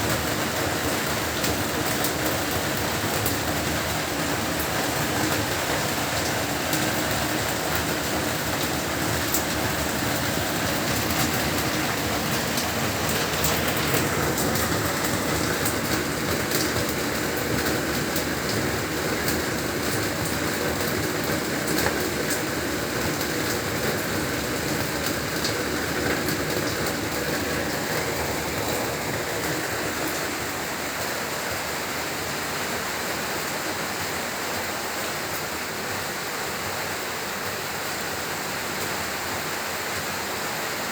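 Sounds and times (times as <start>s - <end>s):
heavy rain hiss: 0.0s - 40.9s
raindrops ticking on surfaces: 0.0s - 40.9s.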